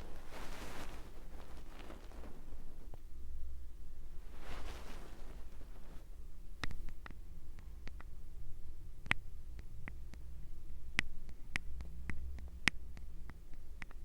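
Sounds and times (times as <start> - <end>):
faint low hum: 0.0 - 14.0
light clicks and taps: 6.6 - 8.2, 10.9 - 14.0.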